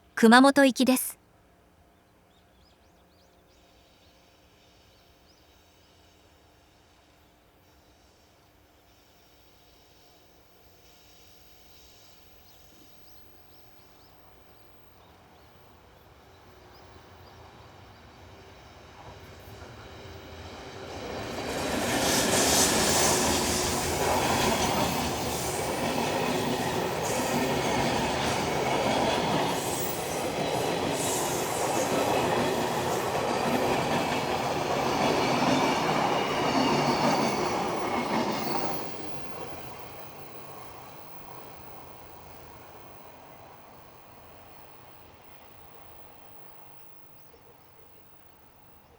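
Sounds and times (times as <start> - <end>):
freight train rumbling on rails: 19.2 - 40.9.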